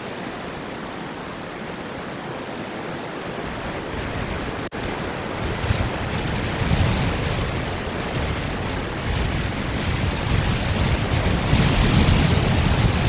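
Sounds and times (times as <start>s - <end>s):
strong wind buffeting microphone: 2.9s - 13.0s.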